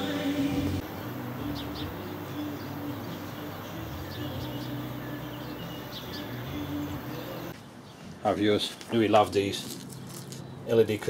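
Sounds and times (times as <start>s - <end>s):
small birds chirping: 1.0s - 11.0s.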